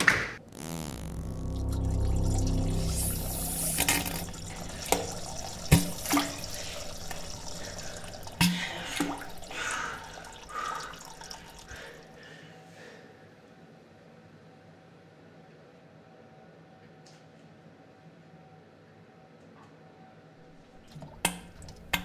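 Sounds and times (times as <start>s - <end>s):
low rumbling: 0.4s - 11.2s.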